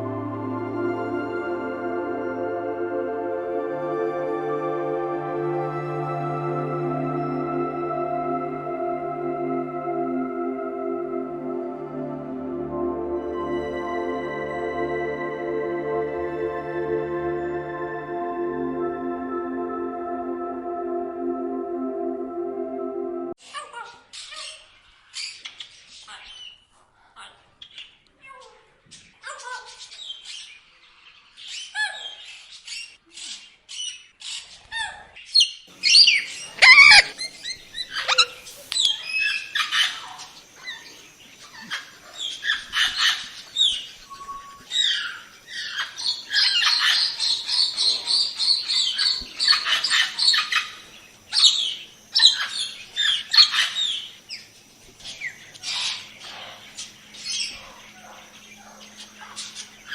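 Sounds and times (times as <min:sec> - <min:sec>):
parrots chirping and squawking: 0:36.0 - 0:37.2.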